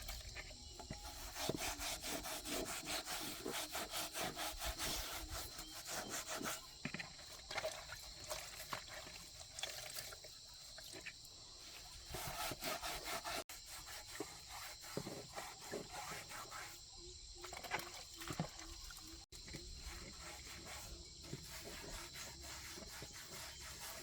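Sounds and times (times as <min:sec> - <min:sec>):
rhythmic hand scraping strokes: 0:00.8 - 0:07.0, 0:11.6 - 0:16.9, 0:19.5 - 0:24.0.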